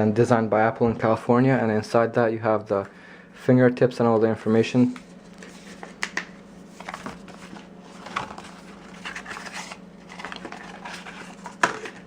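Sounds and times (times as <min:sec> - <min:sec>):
steady low hum: 0:00.0 - 0:12.0
paper rustling and sliding: 0:05.2 - 0:06.0, 0:06.7 - 0:12.0.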